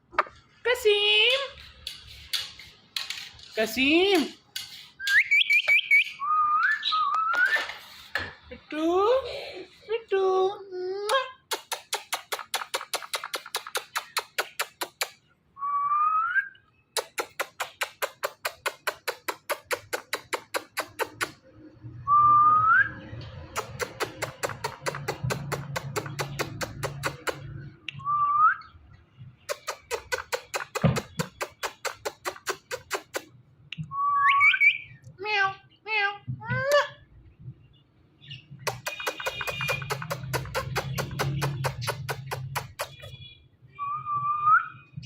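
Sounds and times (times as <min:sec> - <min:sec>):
parrot making rapid clicks: 0:11.4 - 0:15.3, 0:16.9 - 0:21.4, 0:23.4 - 0:27.6, 0:29.5 - 0:33.4, 0:38.6 - 0:43.1.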